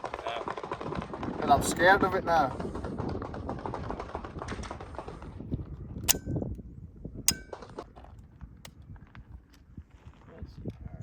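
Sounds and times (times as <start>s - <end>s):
metallic ring: 7.3s - 7.7s.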